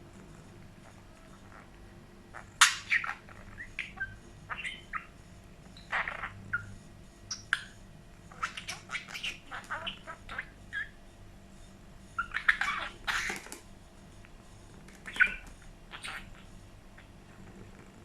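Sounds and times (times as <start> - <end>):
budgerigar chirping and chattering: 2.3 - 5.2, 5.8 - 11.0, 12.2 - 13.6, 14.9 - 17.2.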